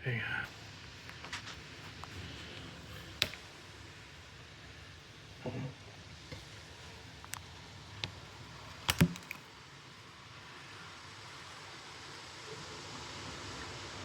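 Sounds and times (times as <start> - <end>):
steady hiss: 0.0 - 14.0
sharp clicks and knocks: 8.9 - 9.4.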